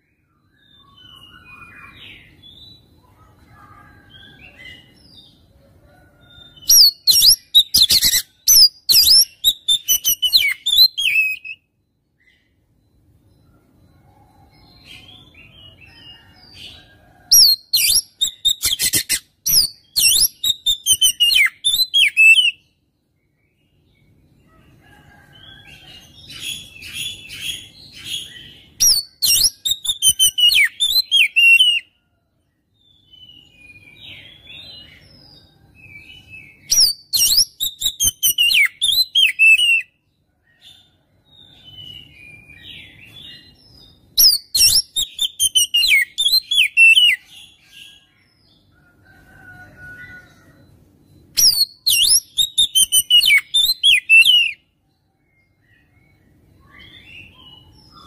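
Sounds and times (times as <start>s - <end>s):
bird singing: 0.0s - 58.0s.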